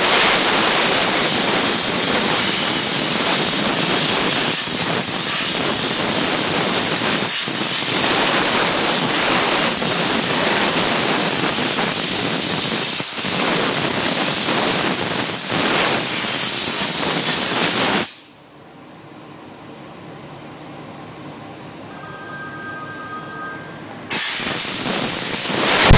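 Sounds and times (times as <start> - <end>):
steam cleaner hissing: 0.0 - 18.4, 24.1 - 25.9.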